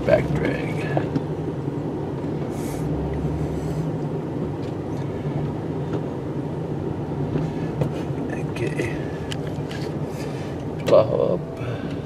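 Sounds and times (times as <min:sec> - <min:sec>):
plow blade dragging snow: 0:02.2 - 0:04.2.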